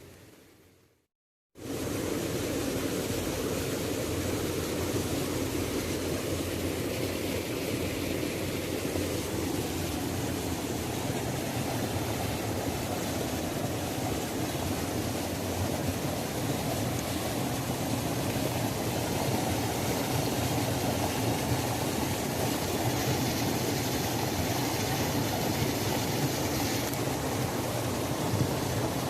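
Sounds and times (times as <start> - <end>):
waterfall rushing: 1.6 - 29.0.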